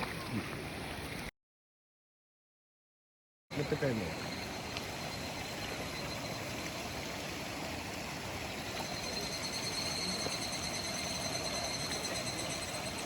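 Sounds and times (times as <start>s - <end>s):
stream water rushing: 3.5s - 13.0s
thin high whine: 8.8s - 13.0s.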